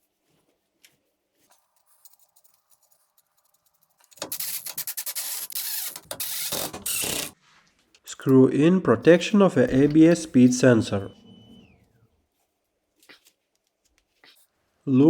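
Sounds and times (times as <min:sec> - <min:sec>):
hand tool rasping on metal: 0:04.2 - 0:07.4.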